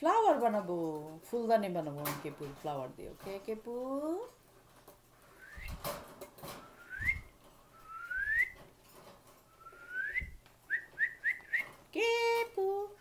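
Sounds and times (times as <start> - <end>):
cockatiel whistling: 6.7 - 8.6, 9.6 - 11.7.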